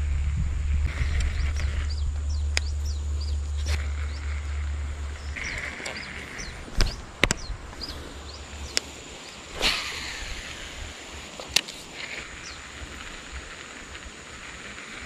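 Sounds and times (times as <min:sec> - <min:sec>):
low rumble: 0:00.0 - 0:15.0
sharp clicks: 0:00.9 - 0:10.1, 0:11.3 - 0:14.7
bird chirping falling notes: 0:00.9 - 0:10.5.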